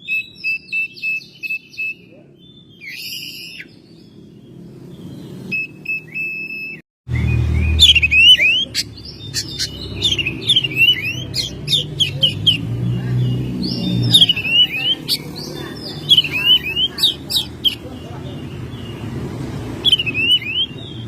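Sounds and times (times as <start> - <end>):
bird singing whistles and chirps: 0.0 - 12.7, 13.3 - 17.9, 19.8 - 21.0.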